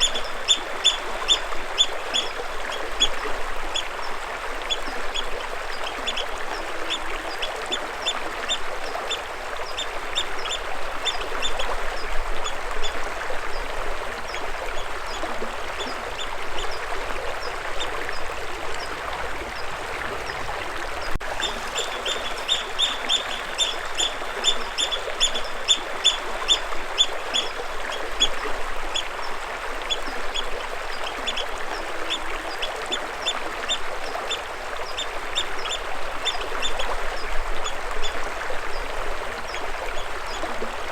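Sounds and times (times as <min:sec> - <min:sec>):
water flowing: 0:00.0 - 0:40.9
bird chirping: 0:21.4 - 0:26.6.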